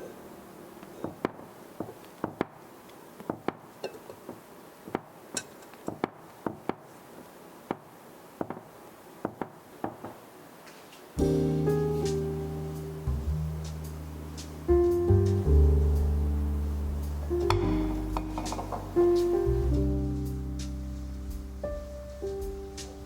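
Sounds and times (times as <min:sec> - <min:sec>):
soft guitar and piano music: 0:00.0 - 0:01.7, 0:11.2 - 0:23.0
dishes and utensils clinking: 0:17.5 - 0:19.1.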